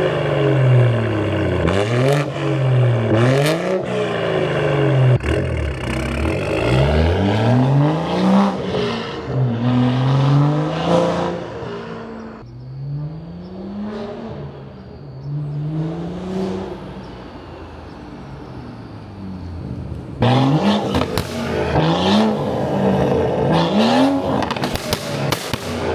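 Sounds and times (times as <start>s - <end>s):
car engine revving: 0.0s - 25.9s.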